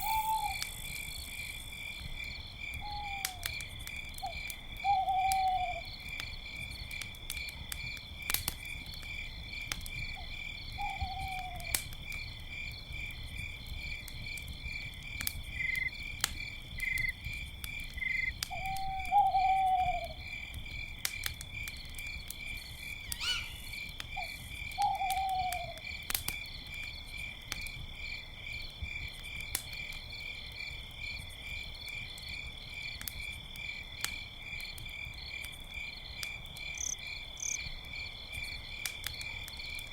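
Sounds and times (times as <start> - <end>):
owl hooting: 0.0 - 0.8, 2.8 - 3.4, 4.9 - 5.8, 10.8 - 11.6, 18.5 - 20.2, 23.1 - 25.8
campfire crackling and popping: 0.0 - 39.9
crickets chirping: 0.0 - 39.9.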